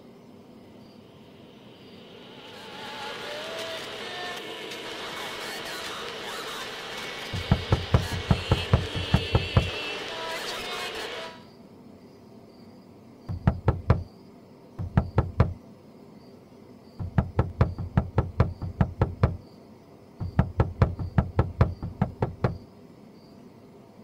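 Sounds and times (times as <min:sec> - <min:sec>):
rapid knocking on door: 0:07.4 - 0:09.8, 0:13.3 - 0:14.1, 0:14.8 - 0:15.6, 0:17.0 - 0:19.4, 0:20.2 - 0:22.6.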